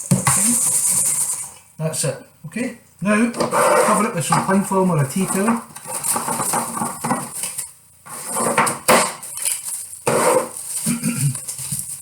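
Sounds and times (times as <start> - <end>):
cling film crinkling and rustling: 4.5 - 7.8, 8.5 - 12.0.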